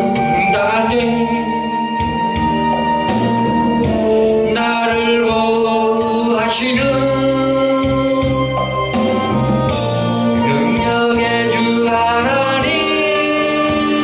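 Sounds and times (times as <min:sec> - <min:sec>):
person singing gospel: 0:00.0 - 0:02.0, 0:04.0 - 0:08.6, 0:10.4 - 0:14.0
bass and keyboard backing: 0:00.0 - 0:14.0.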